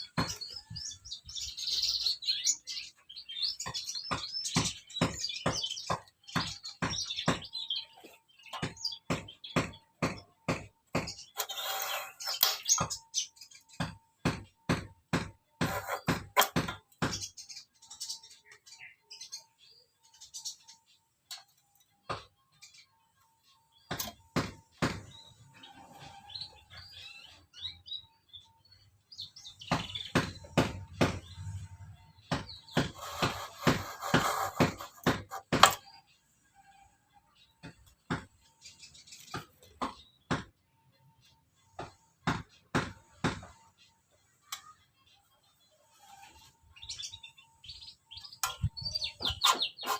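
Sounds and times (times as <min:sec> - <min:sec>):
small birds chirping: 0:00.0 - 0:49.9
sharp knocks: 0:03.6 - 0:07.6, 0:08.5 - 0:13.1, 0:13.7 - 0:17.4, 0:23.9 - 0:25.2, 0:29.6 - 0:35.9, 0:39.3 - 0:40.6.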